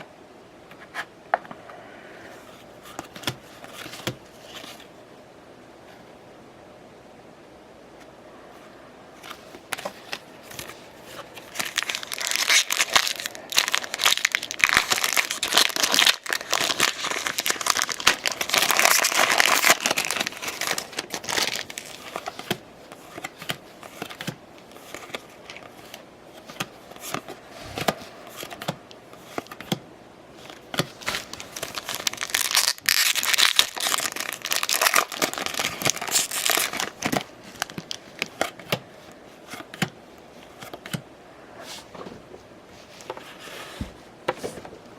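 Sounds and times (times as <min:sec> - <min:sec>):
plastic foil wrappers crinkling: 0:11.3 - 0:22.5, 0:30.4 - 0:38.6.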